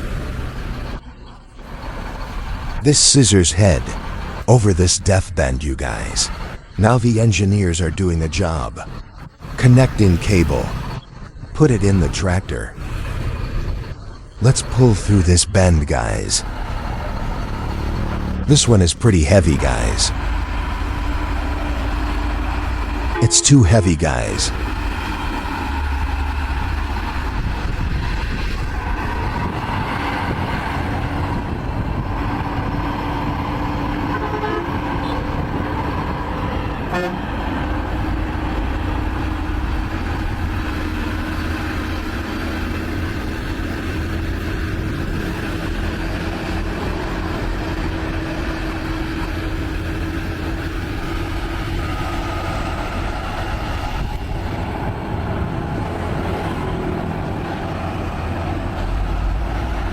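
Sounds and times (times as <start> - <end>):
diesel truck engines rumbling: 0.0 - 59.9.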